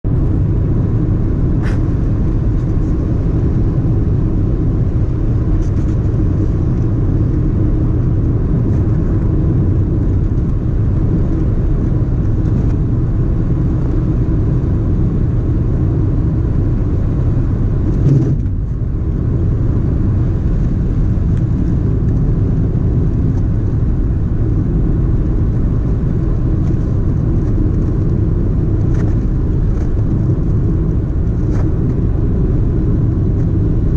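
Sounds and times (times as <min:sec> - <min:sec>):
car engine and tyre rumble: 0:00.0 - 0:33.9.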